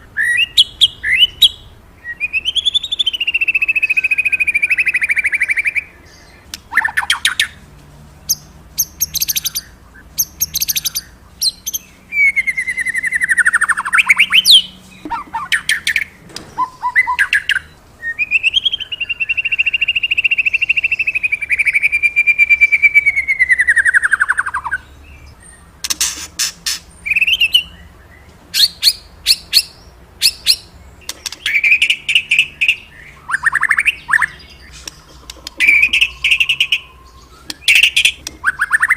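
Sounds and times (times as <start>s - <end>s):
songbird whistling phrases: 0.1s - 7.6s, 8.3s - 24.9s, 27.0s - 30.7s, 31.4s - 38.9s
bird chattering notes: 8.3s - 17.7s, 25.8s - 27.7s, 28.6s - 38.9s.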